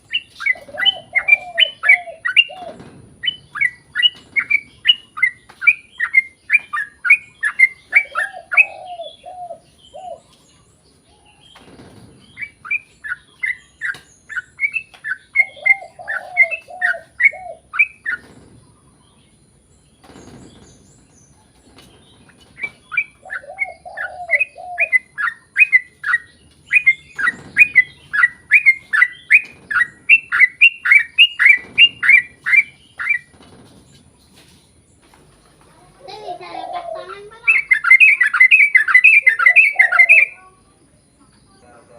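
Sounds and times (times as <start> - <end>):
bird warbling: 0.0 - 10.2, 12.4 - 18.3, 22.4 - 33.3, 36.1 - 40.5
bird chirping rapidly: 0.0 - 10.4, 11.3 - 33.5, 37.0 - 40.5.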